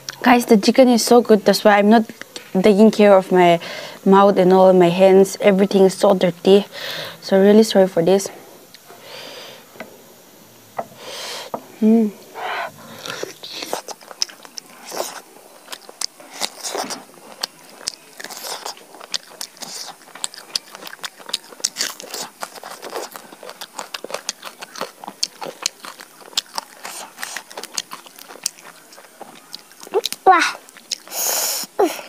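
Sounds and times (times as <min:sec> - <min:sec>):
person chewing and biting: 0:12.9 - 0:31.8.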